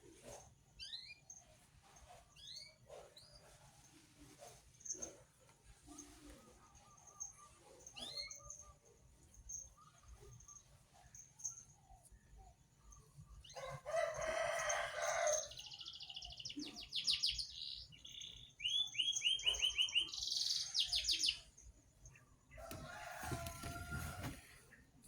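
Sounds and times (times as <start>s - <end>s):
songbird singing trills: 14.7s - 22.4s.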